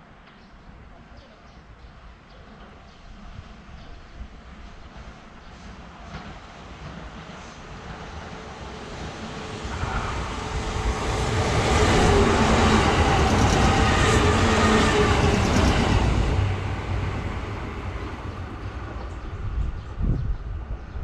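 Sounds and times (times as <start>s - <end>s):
electric train passing: 4.4s - 20.8s
wheels rumbling on rails: 7.8s - 21.0s.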